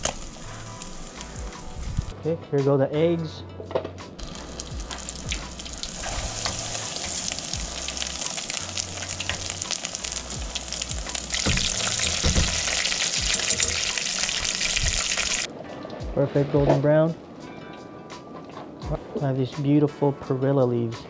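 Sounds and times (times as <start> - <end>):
eggs sizzling in a pan: 0.0 - 2.1, 4.2 - 15.5.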